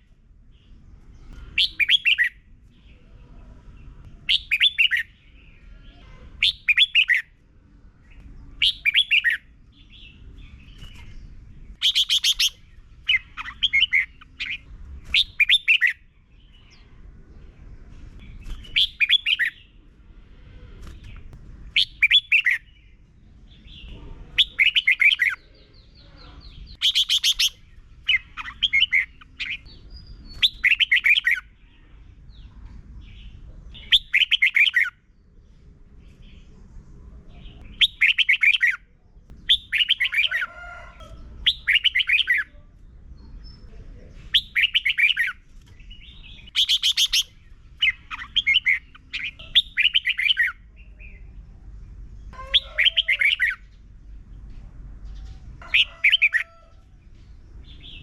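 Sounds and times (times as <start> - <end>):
high-pitched bird calls: 1.2 - 3.1, 4.1 - 7.4, 8.2 - 17.0, 18.4 - 19.8, 20.8 - 23.0, 23.8 - 31.9, 33.7 - 35.1, 37.4 - 43.7, 44.3 - 51.4, 52.3 - 53.8, 55.0 - 56.8.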